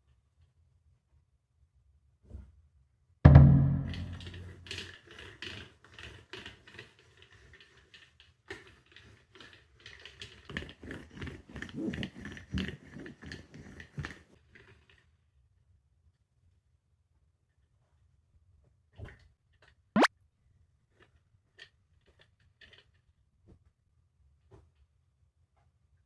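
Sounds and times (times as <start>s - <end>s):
rapid clicking and knocking: 3.3s - 14.3s.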